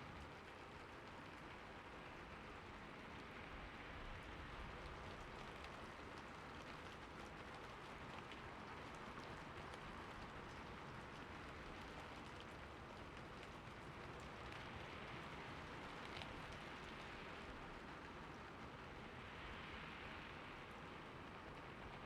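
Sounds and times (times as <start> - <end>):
raindrop ticks: 4.5 - 19.7.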